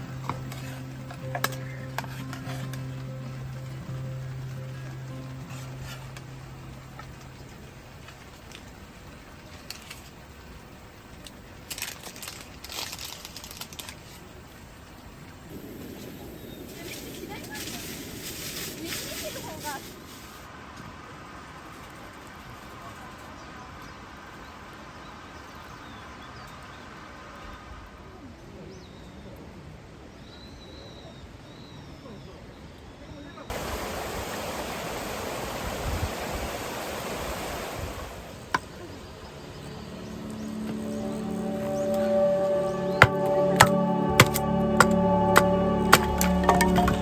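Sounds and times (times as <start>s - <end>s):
rain hissing: 0.0s - 21.6s, 33.5s - 47.0s
campfire crackling: 0.0s - 22.6s, 33.5s - 42.0s.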